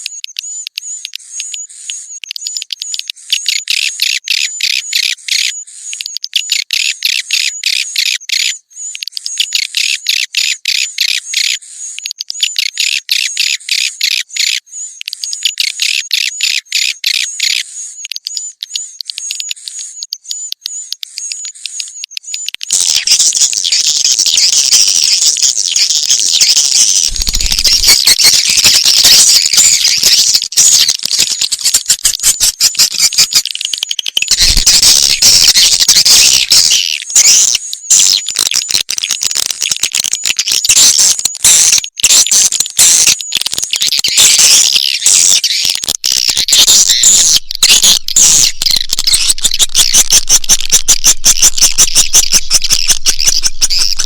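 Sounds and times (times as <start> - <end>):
swiftlets chirping: 17.2 - 39.6, 40.2 - 54.0.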